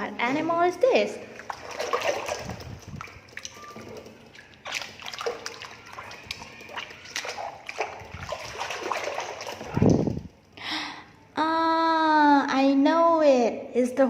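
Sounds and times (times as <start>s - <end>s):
small water splashes: 1.2s - 10.4s
trickling water: 1.2s - 10.6s.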